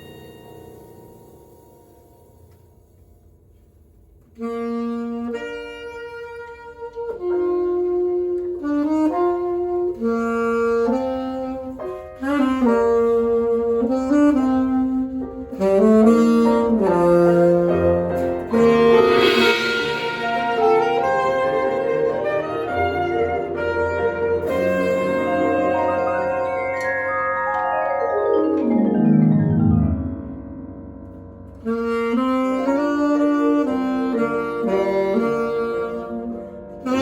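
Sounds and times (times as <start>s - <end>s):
cymbal wash: 0.0s - 3.4s, 18.4s - 23.7s
alto saxophone slow melody: 4.3s - 27.0s, 31.5s - 37.0s.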